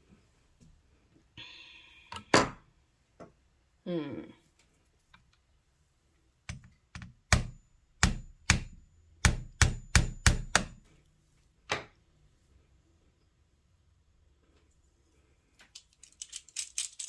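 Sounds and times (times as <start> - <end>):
sharp taps on metal spindle: 6.5 - 10.8.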